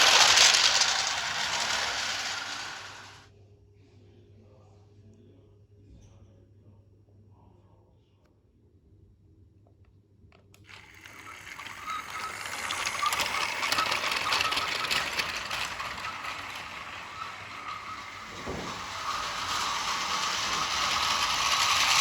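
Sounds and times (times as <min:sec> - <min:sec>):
toy train motor whine: 0:00.0 - 0:03.2, 0:10.6 - 0:22.0
toy train wheels rattling: 0:00.0 - 0:03.2, 0:10.7 - 0:22.0.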